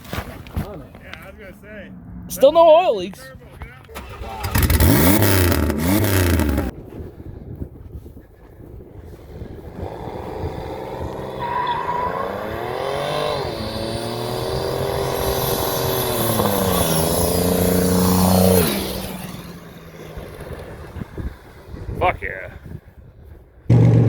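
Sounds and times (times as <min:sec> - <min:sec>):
minivan engine accelerating: 0:04.0 - 0:06.8, 0:09.7 - 0:21.3, 0:23.7 - 0:24.0.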